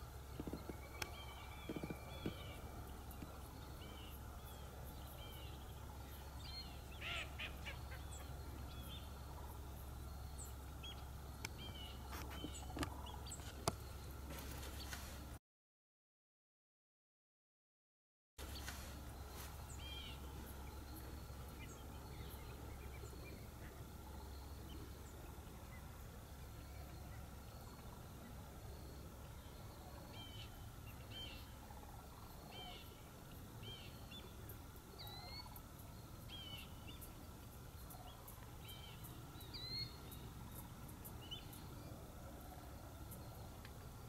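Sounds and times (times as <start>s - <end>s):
faint waterbirds calling: 0.0s - 15.4s, 18.4s - 44.0s
steady low hum: 0.0s - 15.4s, 18.4s - 44.0s.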